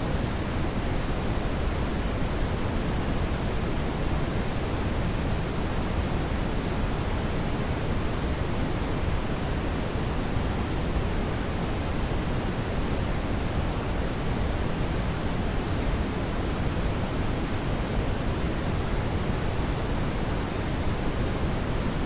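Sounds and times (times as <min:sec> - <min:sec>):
brown noise hiss: 0:00.0 - 0:22.0.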